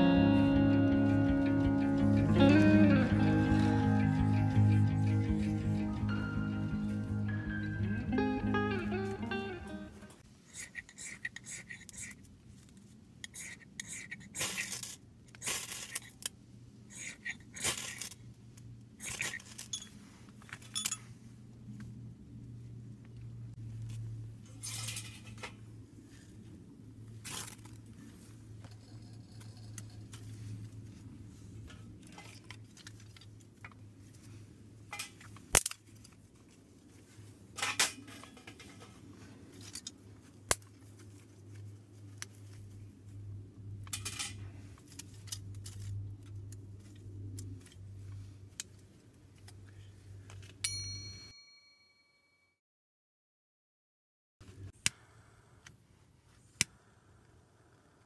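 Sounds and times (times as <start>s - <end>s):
low steady hum: 0.0s - 14.0s
ringing metallic ping: 50.6s - 52.5s.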